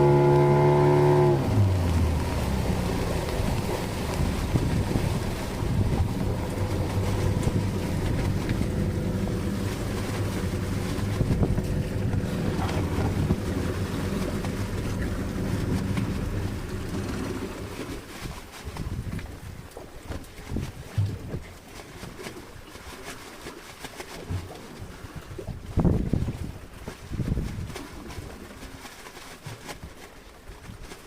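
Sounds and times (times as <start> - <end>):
boat motor running: 0.0 - 19.3
wind on microphone: 0.0 - 22.2, 24.2 - 28.8
water noise: 0.0 - 31.0.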